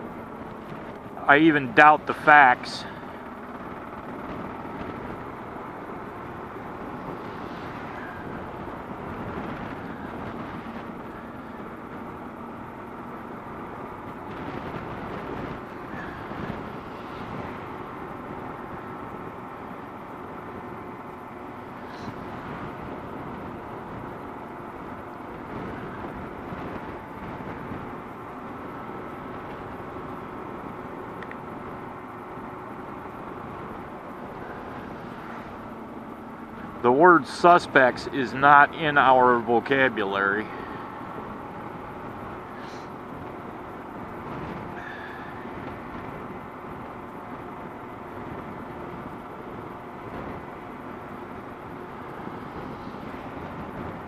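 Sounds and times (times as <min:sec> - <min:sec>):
motorcycle engine running: 0:00.0 - 0:37.3
wind on microphone: 0:02.9 - 0:38.7, 0:40.4 - 0:54.0.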